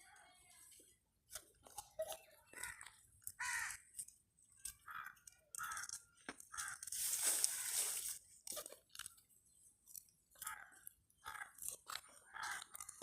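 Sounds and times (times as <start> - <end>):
birds giving harsh calls: 2.5 - 4.0, 4.8 - 8.2, 10.4 - 13.0.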